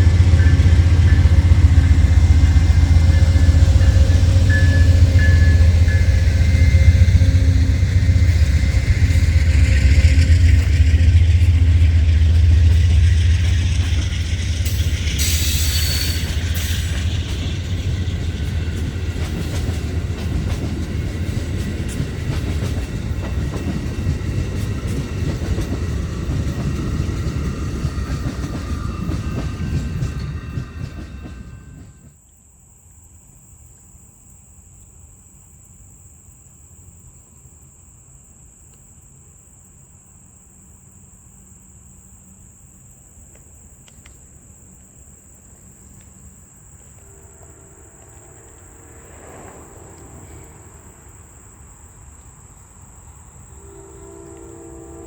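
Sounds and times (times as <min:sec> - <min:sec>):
high-pitched insect drone: 0:00.0 - 0:31.9
train wheels rumbling on rails: 0:00.0 - 0:32.2, 0:41.8 - 0:55.0.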